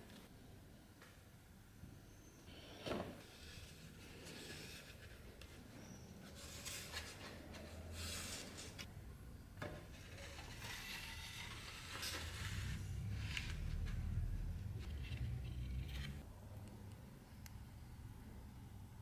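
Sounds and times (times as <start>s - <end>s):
rubbing and scraping: 9.9s - 16.2s
low hum: 10.6s - 18.9s.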